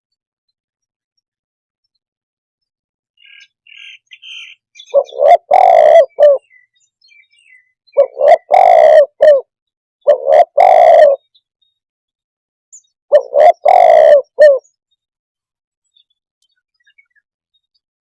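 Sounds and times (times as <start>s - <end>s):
dove cooing: 4.8s - 6.5s, 8.0s - 9.5s, 10.1s - 11.2s, 13.1s - 14.7s.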